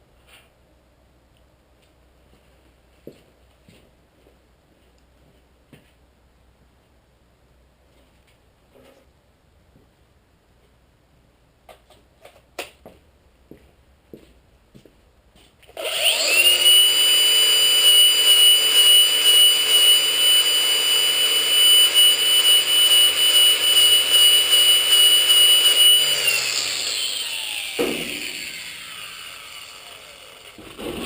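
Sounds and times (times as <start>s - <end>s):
power grinder whining: 15.8s - 31.0s.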